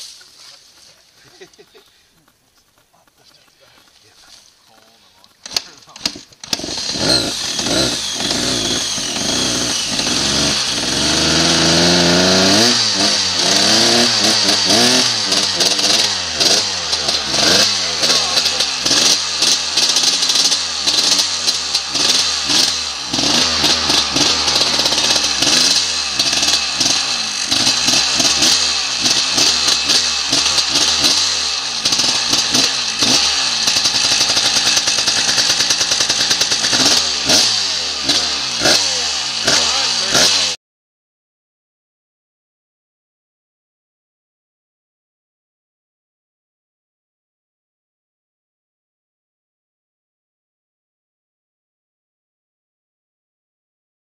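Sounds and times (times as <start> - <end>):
dirt bike engine revving: 4.7 - 40.6.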